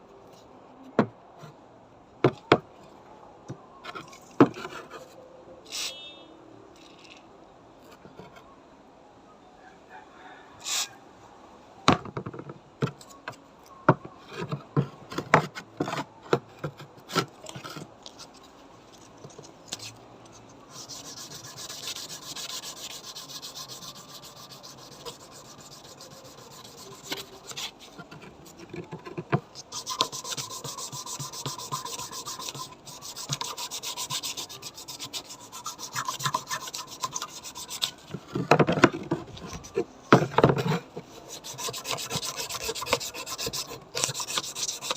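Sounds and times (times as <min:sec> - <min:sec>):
scrubbing strokes on scabbard: 0:05.7 - 0:06.2, 0:10.6 - 0:11.0, 0:17.4 - 0:28.9, 0:29.5 - 0:38.3, 0:40.5 - 0:44.9.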